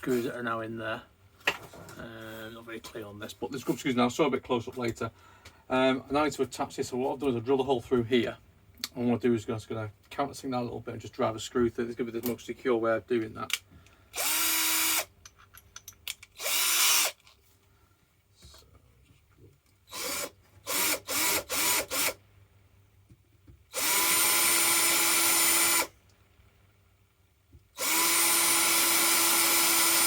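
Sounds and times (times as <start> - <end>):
power drill whining: 14.1 - 15.1, 16.4 - 17.2, 19.9 - 22.2, 23.7 - 26.0, 27.8 - 30.0.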